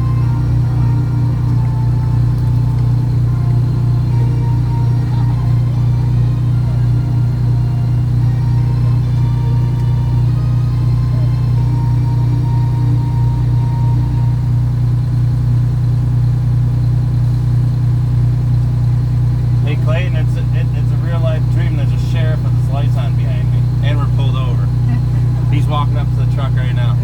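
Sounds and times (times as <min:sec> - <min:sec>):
truck engine droning: 0:00.0 - 0:27.0.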